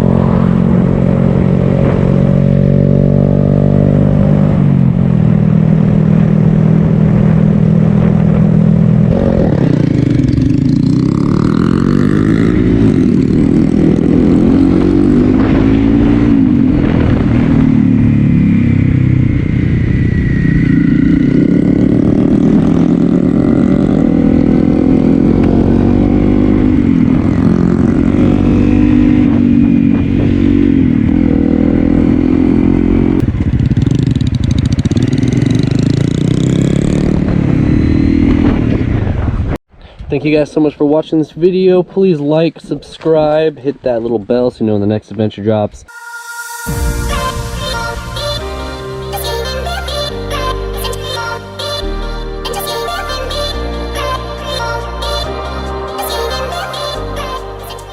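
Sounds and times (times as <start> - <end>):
motorcycle engine revving: 0.0 - 39.6.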